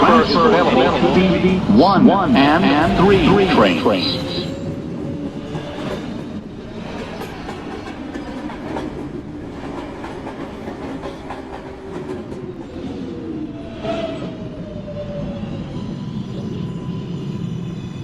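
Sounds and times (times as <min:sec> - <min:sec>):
subway car rumbling on rails: 0:00.0 - 0:18.0.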